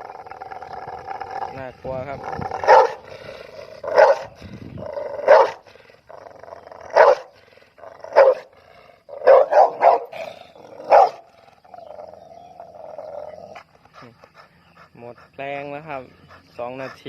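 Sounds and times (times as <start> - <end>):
dog growling: 0.0 - 14.9
big dog barking: 2.2 - 14.2.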